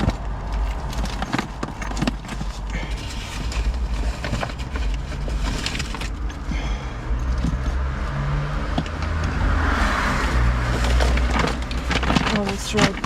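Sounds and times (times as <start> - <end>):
small items knocking and rustling: 0.0 - 7.8, 10.2 - 13.0
low rumble: 0.0 - 13.0.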